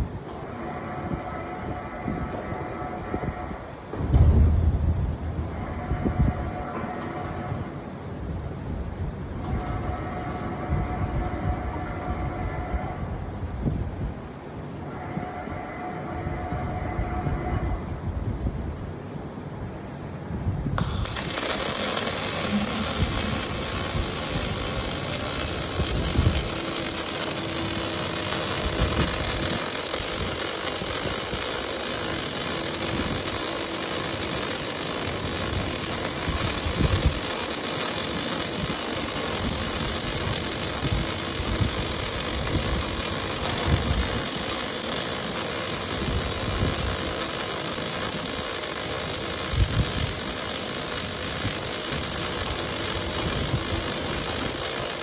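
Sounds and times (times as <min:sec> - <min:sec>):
welding hissing and crackling: 0:20.8 - 0:55.0.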